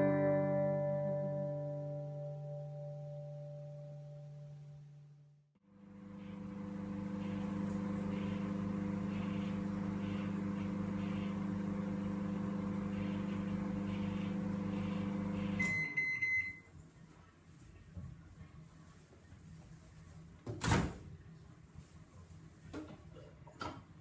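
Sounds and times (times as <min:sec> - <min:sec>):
microwave oven humming: 0:05.6 - 0:16.8.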